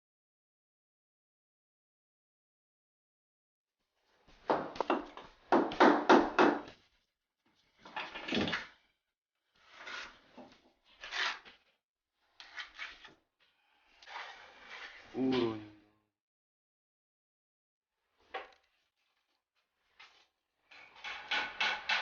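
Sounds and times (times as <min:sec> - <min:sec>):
brick and mortar scraping: 0:09.5 - 0:11.7.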